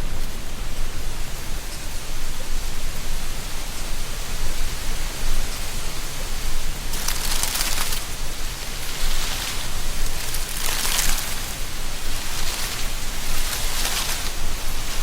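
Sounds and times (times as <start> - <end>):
wind through trees: 0.0 - 15.0
dry leaves rustling: 5.9 - 15.0.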